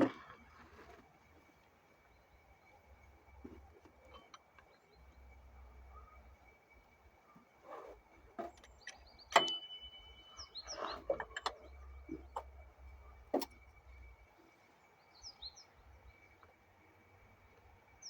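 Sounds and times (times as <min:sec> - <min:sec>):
knocks and clicks of handling: 0:07.8 - 0:09.7, 0:10.6 - 0:12.6, 0:13.2 - 0:13.6
small bird chirping: 0:08.7 - 0:13.2.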